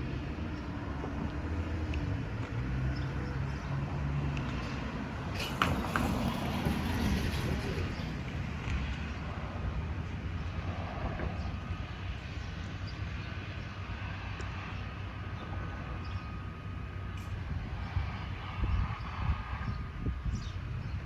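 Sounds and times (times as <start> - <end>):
jet engines rumbling: 4.6 - 12.8, 13.6 - 21.0.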